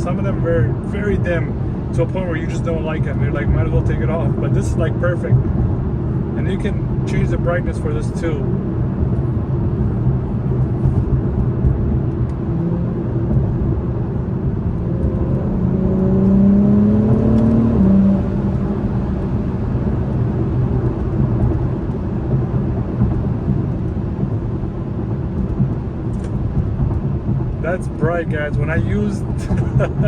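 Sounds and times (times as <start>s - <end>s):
car cabin road and engine rumble: 0.0s - 30.0s.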